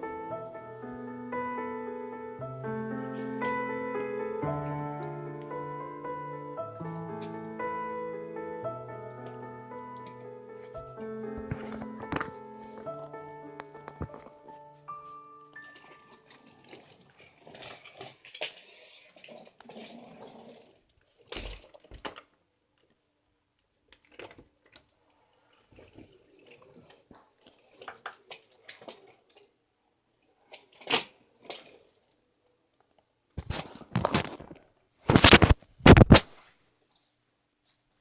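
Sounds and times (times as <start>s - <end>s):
handling rustles and clicks: 11.4s - 13.0s, 13.6s - 14.7s, 32.8s - 36.3s.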